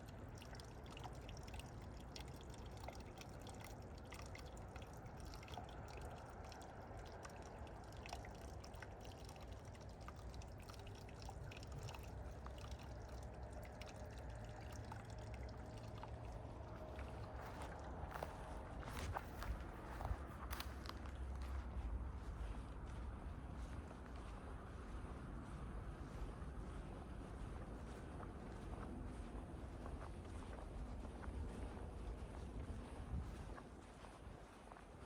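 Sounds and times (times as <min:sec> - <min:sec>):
water trickling: 0:00.0 - 0:21.8
water drips and splashes: 0:00.0 - 0:22.6.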